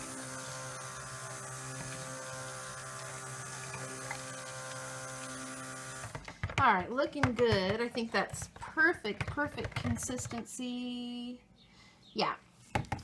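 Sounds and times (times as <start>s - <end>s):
stick blender motor humming: 0.0s - 6.6s.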